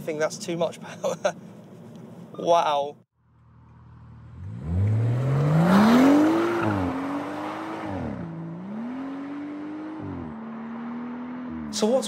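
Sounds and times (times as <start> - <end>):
car engine accelerating: 3.2 - 12.0.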